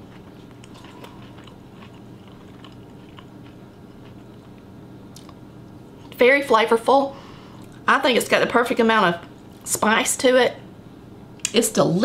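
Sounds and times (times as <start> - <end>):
crunchy fried fish chewing: 0.0 - 5.4
steady low hum: 0.0 - 12.0.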